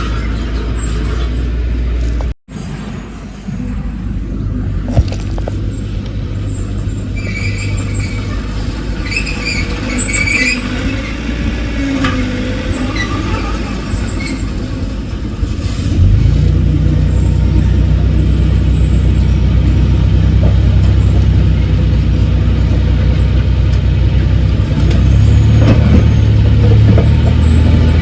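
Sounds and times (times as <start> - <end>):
high squeaks and squeals: 0.0 - 2.8, 5.7 - 16.0, 24.4 - 28.0
diesel engine running: 0.0 - 28.0.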